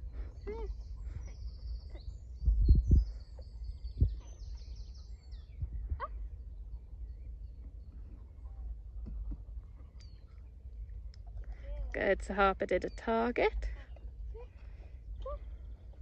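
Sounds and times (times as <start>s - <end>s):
small birds chirping: 0.0s - 16.0s
steady low rumble: 0.0s - 16.0s.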